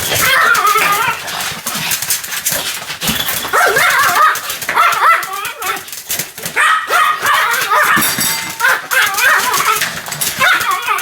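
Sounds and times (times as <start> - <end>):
small dog barking high-pitched: 3.5 - 5.8, 6.6 - 9.8.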